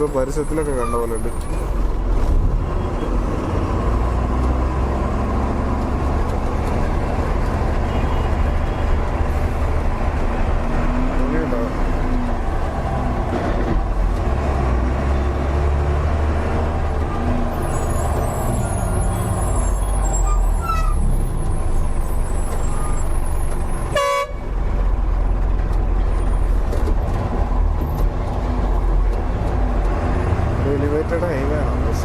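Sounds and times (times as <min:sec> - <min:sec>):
truck engine and road rumble: 0:00.0 - 0:32.0
horn toot: 0:23.9 - 0:24.4.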